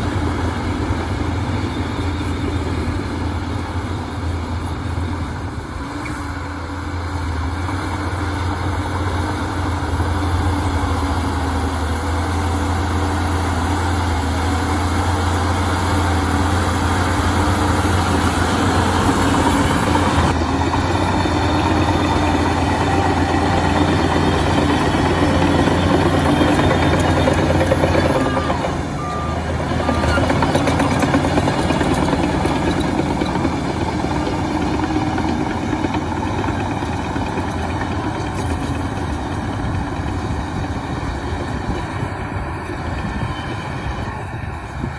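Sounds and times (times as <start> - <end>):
bulldozer diesel engine drone: 0.0 - 44.9
reversing alarm beeps: 21.1 - 31.8.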